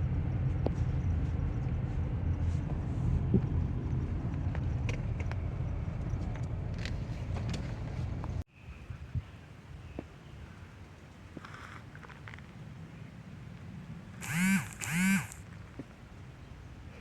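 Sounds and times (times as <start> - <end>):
motor rumbling: 14.2 - 15.4.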